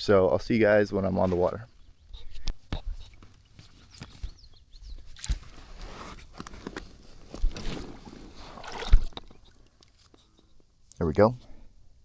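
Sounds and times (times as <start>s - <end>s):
gear knocks and scraping rubs: 2.2s - 10.4s.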